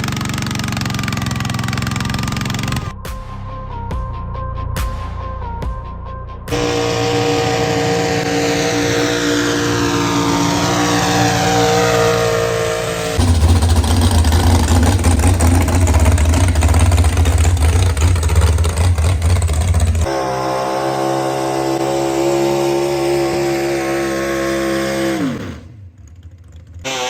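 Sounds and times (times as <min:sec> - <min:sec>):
tractor engines revving: 0:00.0 - 0:03.0, 0:06.5 - 0:27.0.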